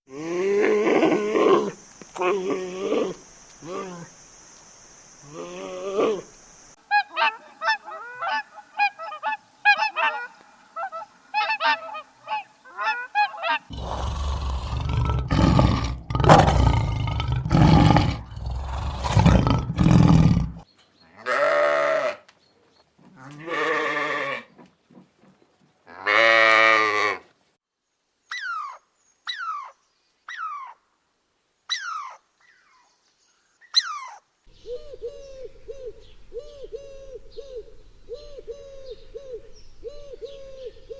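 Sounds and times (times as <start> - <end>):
rapid chattering animal calls: 12.8 - 20.6
rough deep animal call: 13.6 - 20.6.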